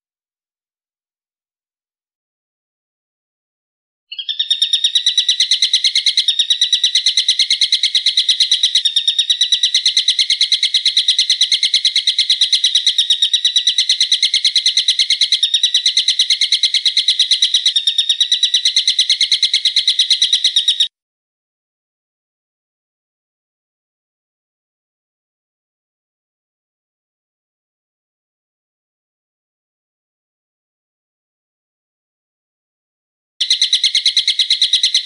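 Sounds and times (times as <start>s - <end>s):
bird chattering sharp notes: 4.1s - 20.9s, 33.4s - 35.0s.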